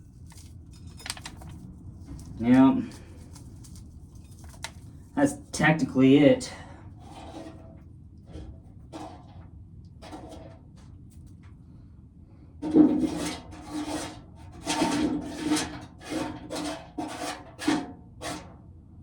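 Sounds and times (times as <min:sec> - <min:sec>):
faint scraping: 0:00.0 - 0:05.5.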